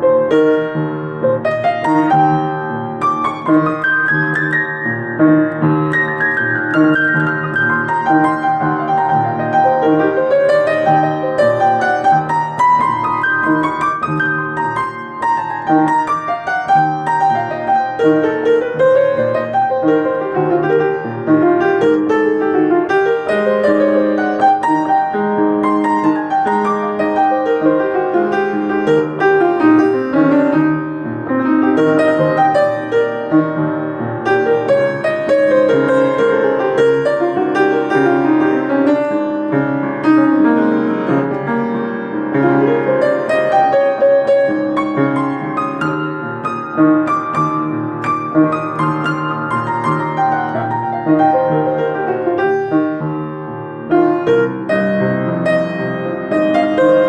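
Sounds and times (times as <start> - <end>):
solo piano improvisation: 0.0 - 57.0.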